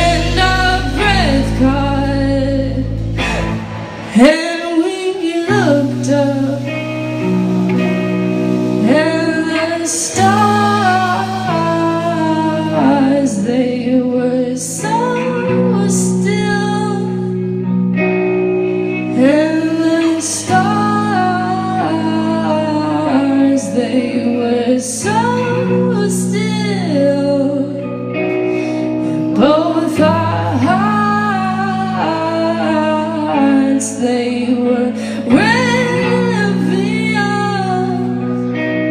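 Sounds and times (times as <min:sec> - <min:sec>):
woman singing: 0:00.0 - 0:18.2, 0:18.8 - 0:38.9
rock band playing: 0:00.0 - 0:38.9.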